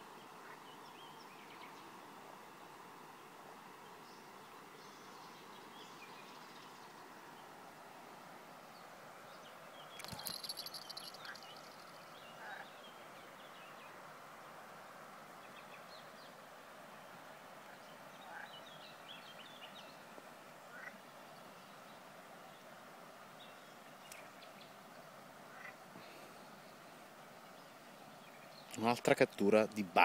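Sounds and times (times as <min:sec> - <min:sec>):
low hiss: 0:00.0 - 0:30.0
small birds chirping: 0:08.7 - 0:14.1, 0:23.4 - 0:24.8, 0:25.5 - 0:29.9.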